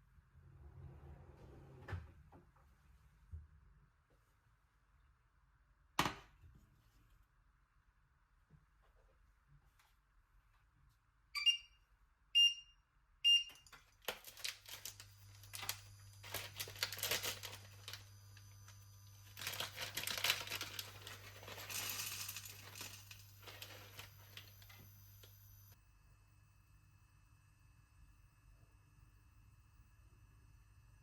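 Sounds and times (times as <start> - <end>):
low electrical hum: 6.6 - 31.0
appliance control panel beeps: 11.4 - 11.8, 12.4 - 13.7
crinkling and rustling: 13.6 - 25.3.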